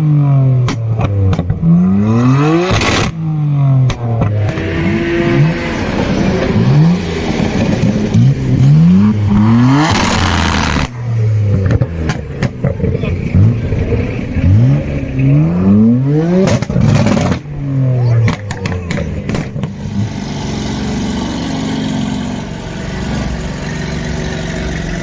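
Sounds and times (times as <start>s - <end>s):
sports car engines revving: 0.0s - 25.0s
exhaust pops and cracks: 0.6s - 1.7s, 3.8s - 4.8s, 6.1s - 15.6s, 16.4s - 19.9s.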